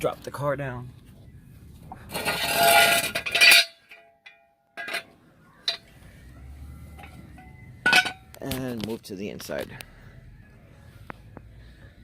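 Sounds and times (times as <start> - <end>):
car jack lowering scraping rush: 2.0 - 3.8.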